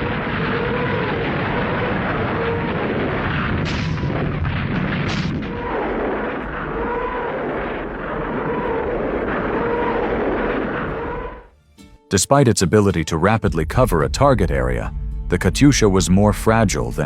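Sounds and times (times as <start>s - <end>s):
rising and falling howl: 0.0s - 11.5s
rockets firing roar: 0.0s - 11.5s
sharp blasts: 0.0s - 11.5s.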